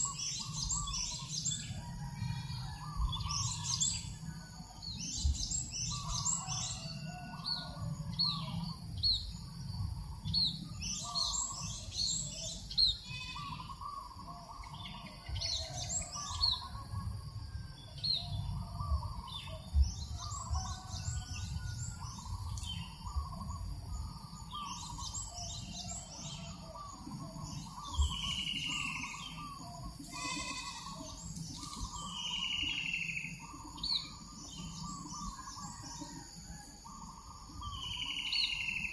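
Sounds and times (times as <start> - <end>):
birds chattering: 0.0 - 4.2, 5.0 - 7.3, 8.1 - 17.1, 18.2 - 36.2
birds chirping: 0.0 - 17.2, 17.8 - 38.9
falling whistled bird calls: 18.8 - 38.9.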